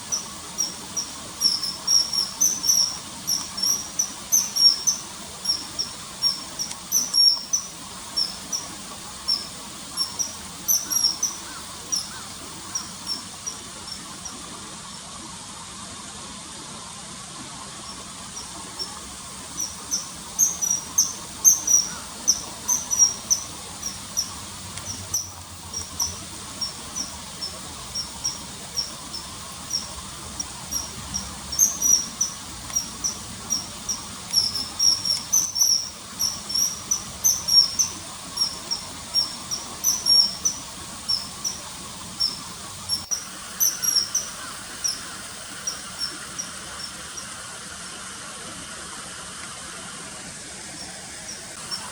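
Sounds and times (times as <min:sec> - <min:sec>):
kingfisher calling: 0:00.0 - 0:14.4, 0:17.9 - 0:47.3
faint background hiss: 0:00.0 - 0:51.9.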